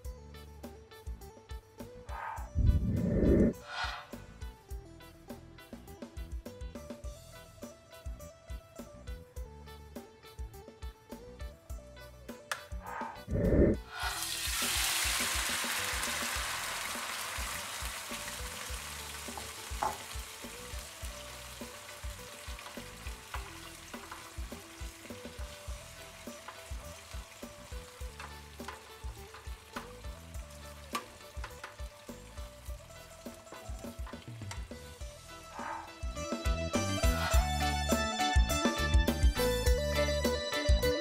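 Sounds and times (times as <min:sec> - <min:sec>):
spatula scraping a pan: 0:13.8 - 0:14.3
meat sizzling in hot oil: 0:13.8 - 0:36.2.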